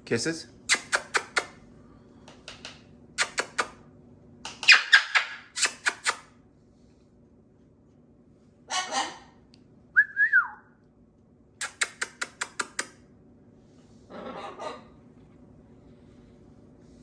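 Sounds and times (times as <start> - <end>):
parrot kissing smacks: 0.7 - 1.6, 3.2 - 3.8, 4.5 - 6.3, 11.6 - 13.0
parrot squawking: 4.6 - 6.2, 8.7 - 9.4, 14.1 - 14.9.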